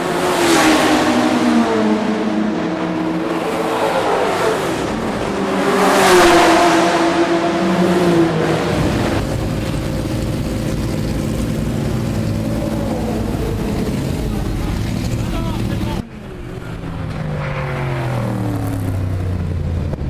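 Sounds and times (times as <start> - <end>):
racing car engine passing: 0.0 - 20.0
low engine rumble: 7.5 - 20.0.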